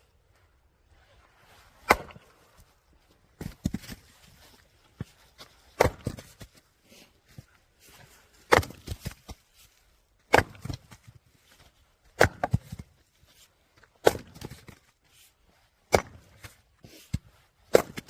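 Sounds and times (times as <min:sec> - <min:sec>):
log splitter splitting strikes: 0:01.8 - 0:02.3, 0:05.8 - 0:06.2, 0:08.5 - 0:08.9, 0:10.3 - 0:10.9, 0:12.2 - 0:12.6, 0:14.0 - 0:14.7, 0:15.9 - 0:16.3.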